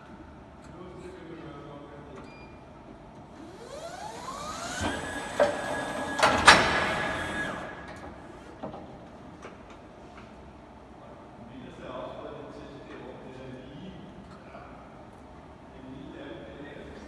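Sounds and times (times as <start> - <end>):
electric forklift motor whining: 3.4 - 8.2.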